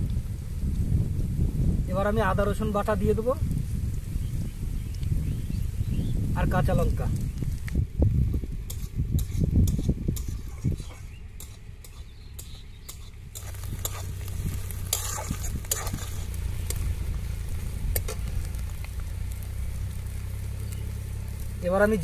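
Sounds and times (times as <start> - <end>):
food frying in oil: 0.0 - 22.0
spatula scraping a pan: 8.7 - 16.8.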